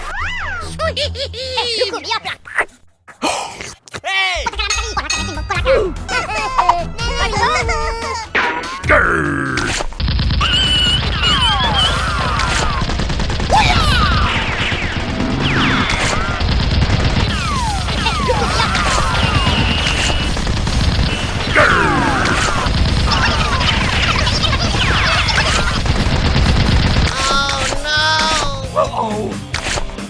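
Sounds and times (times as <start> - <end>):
rapid automatic gunfire: 9.7 - 28.4.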